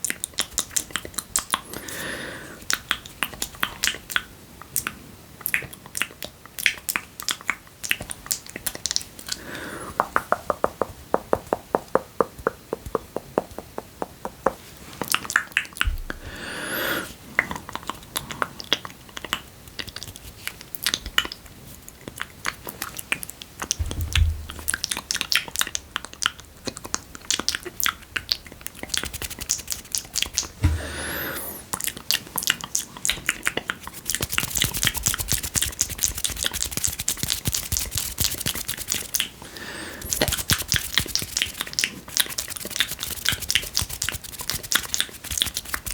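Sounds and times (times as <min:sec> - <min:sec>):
tongue and lip clicks: 0:00.0 - 0:01.7, 0:02.7 - 0:09.4, 0:17.4 - 0:30.6, 0:31.4 - 0:39.4, 0:40.0 - 0:45.9
spit smacks: 0:22.0 - 0:45.9
soft low bumps: 0:23.8 - 0:25.0.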